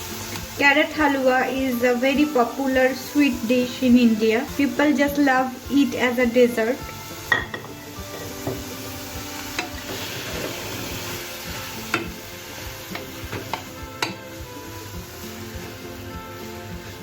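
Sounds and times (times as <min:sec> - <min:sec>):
carrots sizzling in a pan: 0:00.0 - 0:17.0
spoon knocking against pan: 0:07.2 - 0:08.7, 0:11.9 - 0:12.2, 0:12.9 - 0:14.2.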